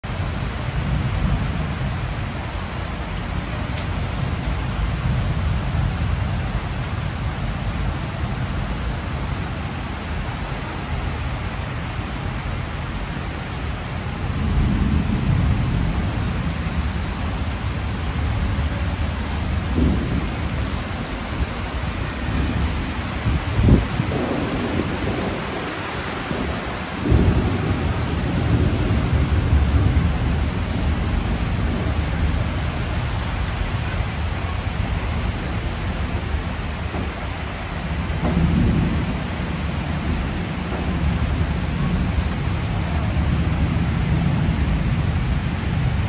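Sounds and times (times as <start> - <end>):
heavy rain on metal roofs: 0.0 - 46.0
thunder rumble: 13.8 - 46.0.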